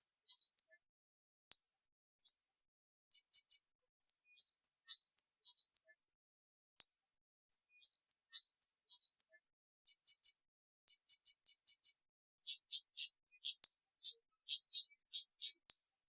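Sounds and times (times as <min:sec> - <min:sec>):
bird whistling: 0:00.1 - 0:00.8, 0:01.5 - 0:02.5, 0:04.1 - 0:05.9, 0:06.8 - 0:09.4, 0:12.5 - 0:16.0.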